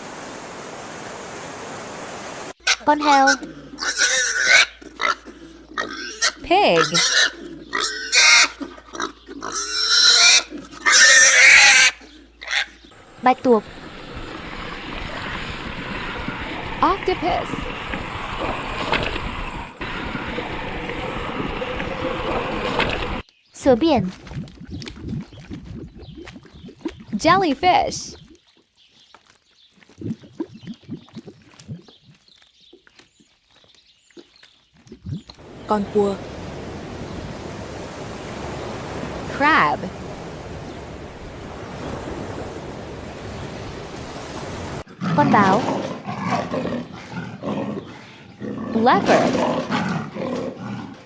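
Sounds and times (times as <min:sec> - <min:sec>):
pig harsh cries: 0:02.6 - 0:05.2, 0:05.8 - 0:12.7
water bubbling: 0:13.0 - 0:23.2, 0:35.4 - 0:44.9.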